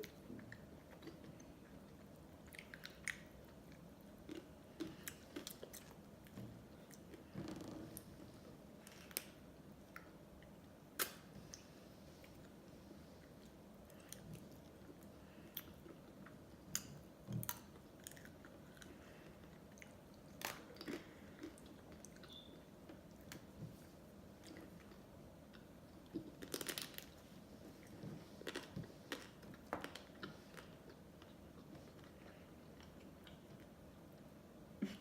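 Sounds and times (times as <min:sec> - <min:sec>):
biting and chewing ice cream: 0:00.0 - 0:07.3.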